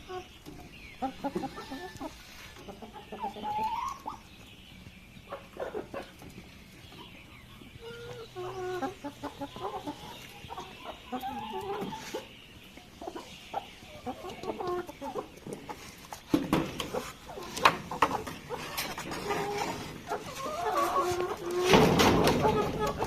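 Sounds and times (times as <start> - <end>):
chickens clucking: 0.0 - 23.0
knocks and rustles: 15.5 - 23.0.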